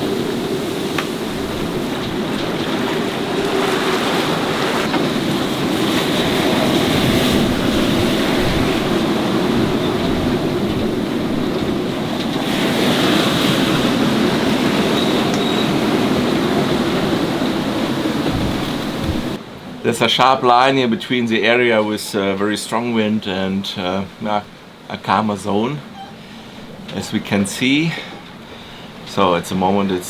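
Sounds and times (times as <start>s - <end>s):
wind buffeting microphone: 0.0s - 19.4s
strong wind: 0.0s - 20.5s
waves rushing past hull: 0.0s - 30.0s.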